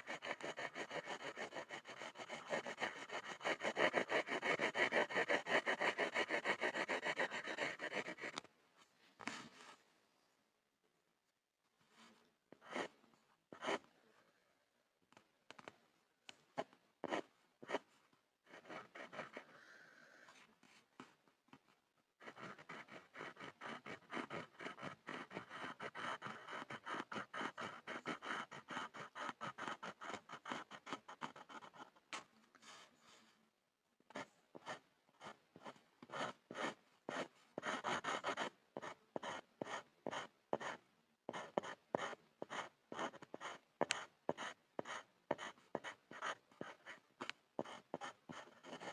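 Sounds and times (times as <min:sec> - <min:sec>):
pencil scribbling on a board: 0:00.0 - 0:08.4, 0:17.0 - 0:17.9, 0:18.5 - 0:19.5, 0:22.2 - 0:31.9, 0:34.1 - 0:47.0, 0:47.6 - 0:48.9.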